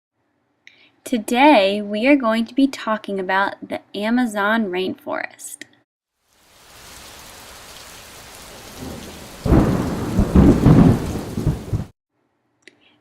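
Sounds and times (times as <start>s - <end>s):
steady rain: 6.2s - 11.9s
rolling thunder: 8.5s - 11.9s.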